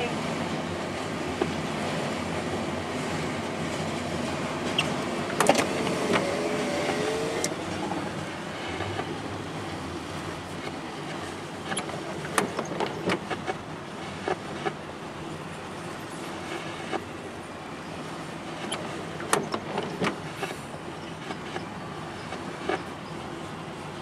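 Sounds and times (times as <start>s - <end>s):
train rumbling: 0.0s - 24.0s
wheel squeal: 4.7s - 5.0s, 18.6s - 23.2s.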